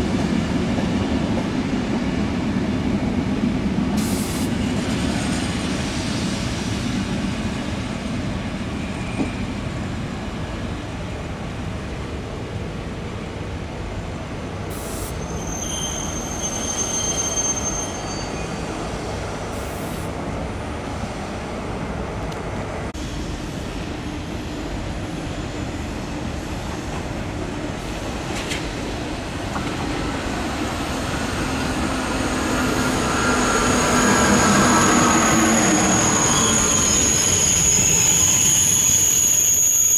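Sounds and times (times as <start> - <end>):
train rumbling on rails: 0.0 - 39.9
train wheels squealing: 4.0 - 7.6, 8.5 - 10.2, 14.7 - 20.1, 29.6 - 39.9.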